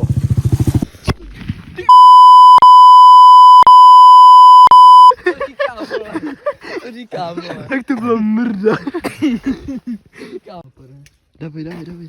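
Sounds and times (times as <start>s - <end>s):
electronic censor bleep: 1.9s - 5.1s.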